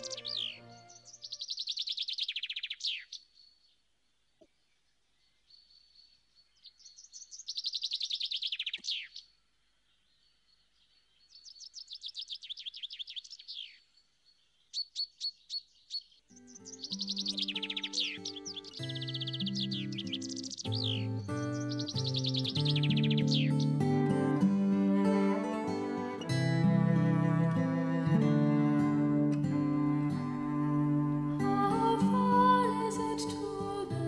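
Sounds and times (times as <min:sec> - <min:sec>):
background music: 0:00.0 - 0:01.4, 0:20.8 - 0:34.0
songbird singing: 0:00.0 - 0:34.0.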